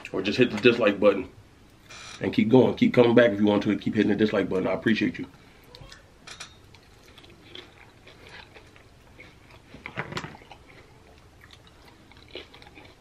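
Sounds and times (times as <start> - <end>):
chewing and biting nachos: 6.6 - 13.0.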